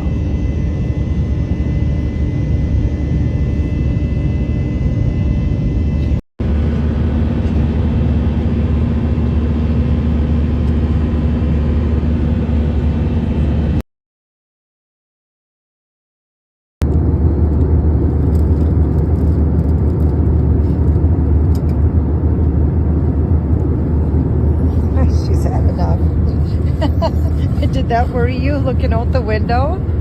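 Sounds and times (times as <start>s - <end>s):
airliner cabin rumble: 0.0s - 13.8s, 16.8s - 30.0s
faint steady whine: 21.6s - 30.0s.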